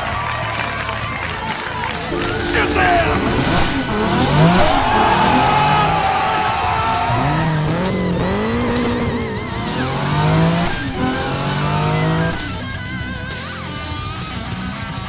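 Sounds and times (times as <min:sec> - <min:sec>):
background music: 0:02.1 - 0:07.6
race car engines revving: 0:03.3 - 0:13.5.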